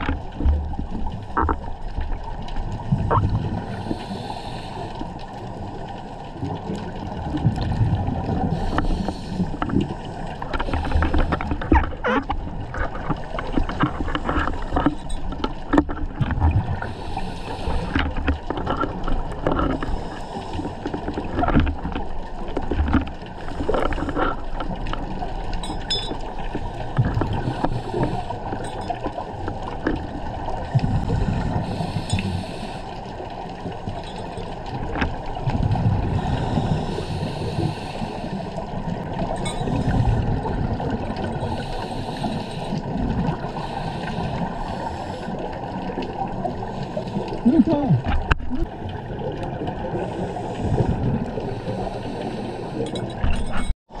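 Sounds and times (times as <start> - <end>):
scuba regulator breathing: 3.6 - 5.1, 8.3 - 12.2, 16.7 - 18.3, 19.4 - 21.0, 27.3 - 28.9, 30.7 - 33.1, 36.0 - 38.6, 41.3 - 45.7, 46.6 - 48.9, 49.9 - 53.3.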